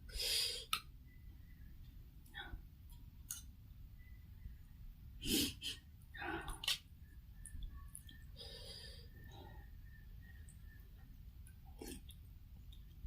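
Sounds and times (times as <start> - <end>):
breaths: 8.3 - 10.0.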